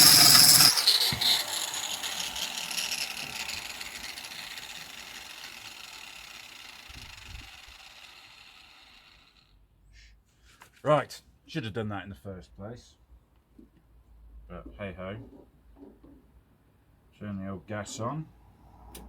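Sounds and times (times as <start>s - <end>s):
angle grinder grinding steel: 0.0s - 9.4s
grinder disc whirring down: 0.0s - 9.4s.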